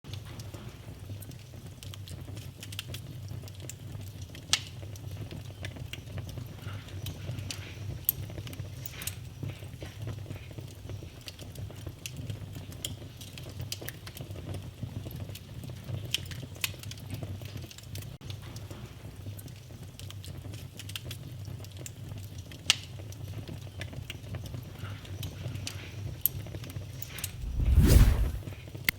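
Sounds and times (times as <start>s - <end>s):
low rumble: 27.3s - 28.4s
wood fire crackling and popping: 27.3s - 28.4s.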